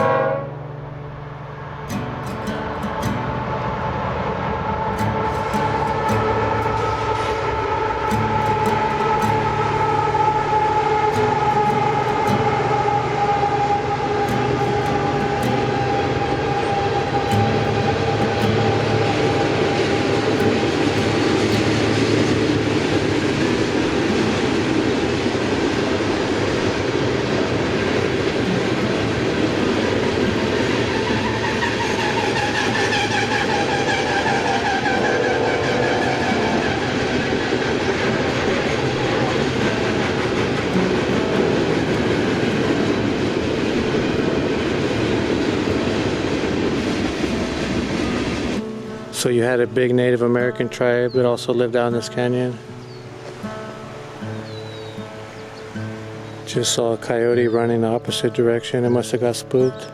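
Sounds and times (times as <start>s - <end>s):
train rumbling and clattering: 1.9s - 49.2s
wheel squeal: 28.4s - 43.1s.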